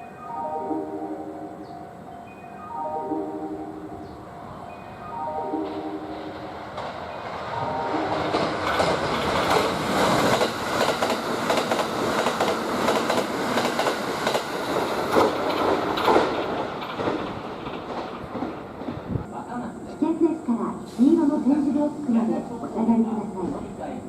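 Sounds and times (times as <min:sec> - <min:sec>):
station melody: 0:00.0 - 0:06.7
train wheels clattering over joints: 0:08.1 - 0:19.3.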